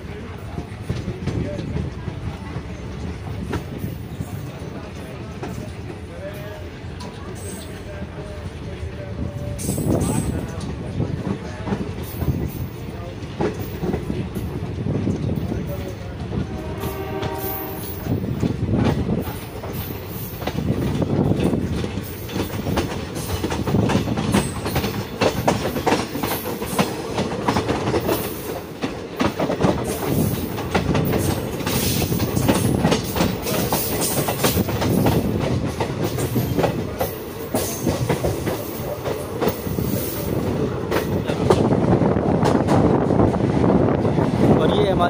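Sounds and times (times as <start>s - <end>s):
train rumbling: 0.0s - 45.0s
wheels clattering over rail joints: 17.0s - 41.8s.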